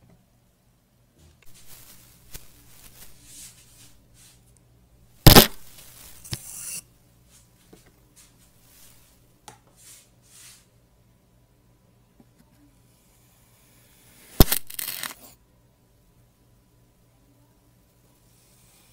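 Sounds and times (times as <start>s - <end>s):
faint rubbing and handling: 1.3s - 4.6s, 5.6s - 10.8s.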